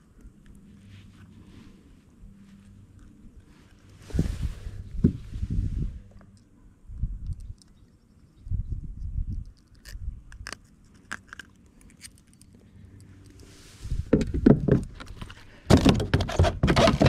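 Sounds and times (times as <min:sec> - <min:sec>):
rustling: 0:00.5 - 0:06.4
fishing gear clicking and rattling: 0:09.4 - 0:13.4.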